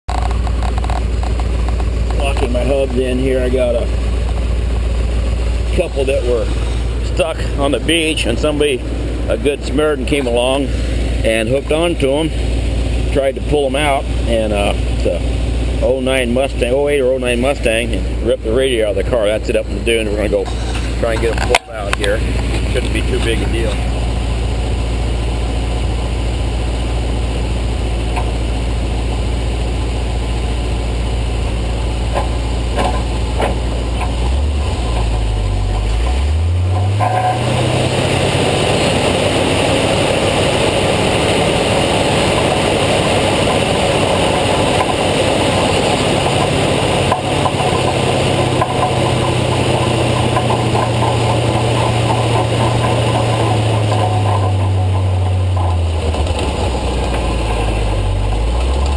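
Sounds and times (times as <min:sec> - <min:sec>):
tow truck engine running: 0:00.1 - 0:58.9
rushing noise: 0:32.2 - 0:58.9.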